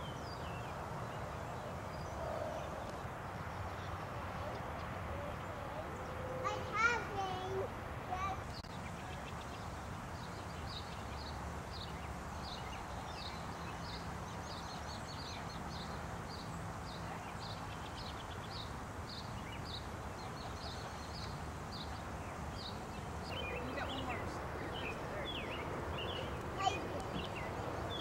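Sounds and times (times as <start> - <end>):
outdoor background hiss: 0.0 - 28.0
bird chirping: 8.5 - 28.0.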